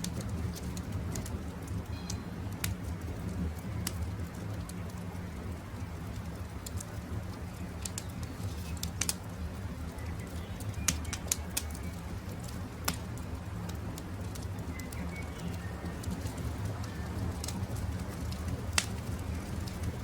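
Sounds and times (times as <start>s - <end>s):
campfire crackling: 0.0s - 20.0s
fire popping: 0.0s - 20.0s
faint birdsong: 1.8s - 2.6s, 7.0s - 13.3s, 14.2s - 17.6s.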